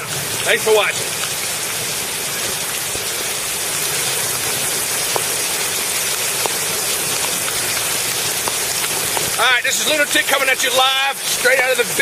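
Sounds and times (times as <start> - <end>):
heavy rain on pavement: 0.0 - 12.0
sharp rain taps: 0.0 - 12.0.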